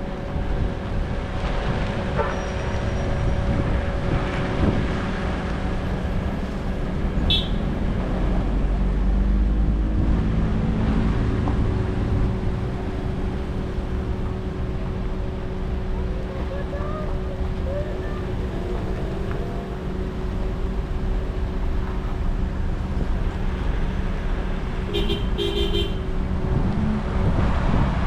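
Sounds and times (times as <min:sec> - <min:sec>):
vehicle engines humming: 0:00.0 - 0:28.0.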